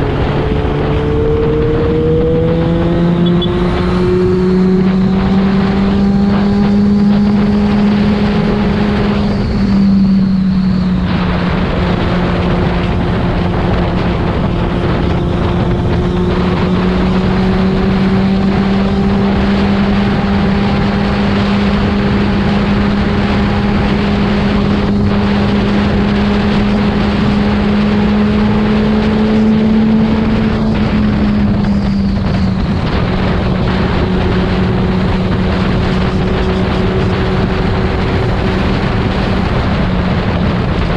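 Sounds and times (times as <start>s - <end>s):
motorcycle engine running: 0.0s - 40.9s
wind noise: 0.0s - 40.9s.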